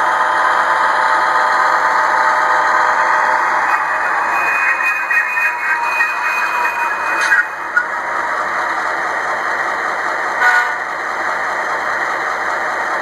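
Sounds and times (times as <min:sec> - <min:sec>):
model locomotive engine rumble: 0:00.0 - 0:13.0
high tones: 0:03.4 - 0:08.0.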